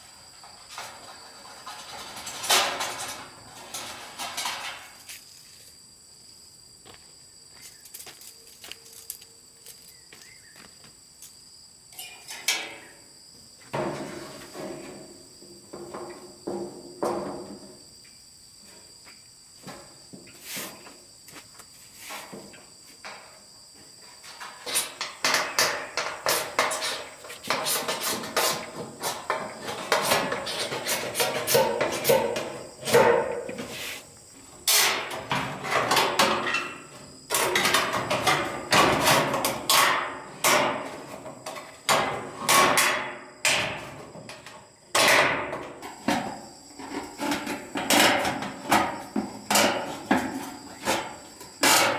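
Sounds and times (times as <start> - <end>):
high insect trill: 0.0 - 51.9.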